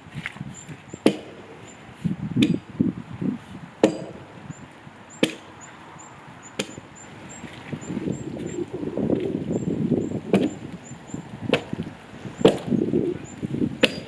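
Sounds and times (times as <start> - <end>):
axe chopping wood: 1.0 - 1.4, 2.4 - 2.6, 3.8 - 4.3, 5.2 - 5.5, 6.6 - 6.8, 10.3 - 10.6, 11.5 - 11.8, 12.4 - 12.8, 13.7 - 14.0.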